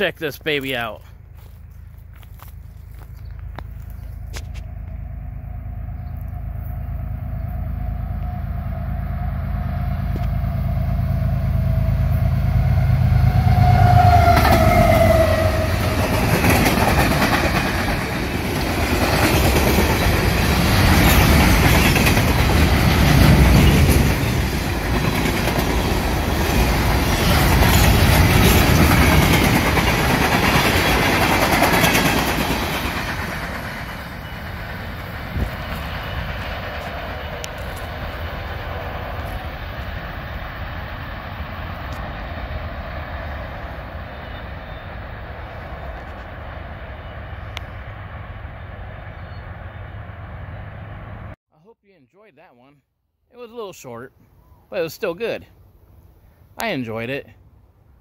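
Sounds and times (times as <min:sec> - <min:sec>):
locomotive rumble: 0:00.0 - 0:51.4
steady tone dropping in pitch: 0:04.5 - 0:16.0
train wheels clattering on rails: 0:15.6 - 0:39.4.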